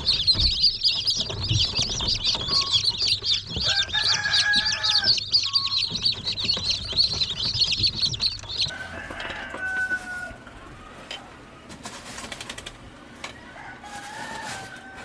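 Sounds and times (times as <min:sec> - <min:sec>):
chicks peeping: 0:00.0 - 0:11.5.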